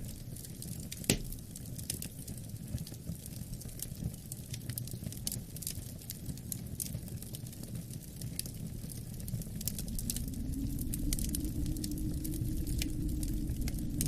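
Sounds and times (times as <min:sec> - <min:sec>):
wood fire crackling: 0:00.0 - 0:14.0
low rumble: 0:08.6 - 0:14.0.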